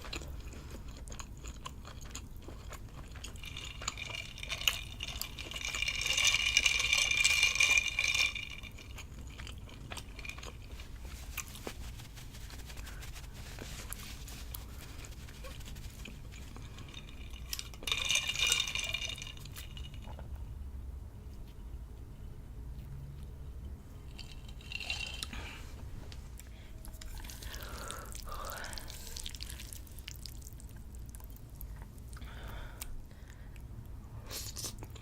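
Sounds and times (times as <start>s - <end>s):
quiet chewing and mouth clicks: 0.0s - 5.6s, 26.1s - 35.0s.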